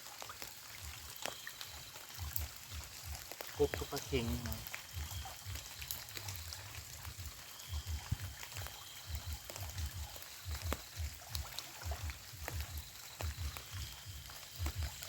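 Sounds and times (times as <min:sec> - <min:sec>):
water trickling and pouring: 0:00.0 - 0:15.0.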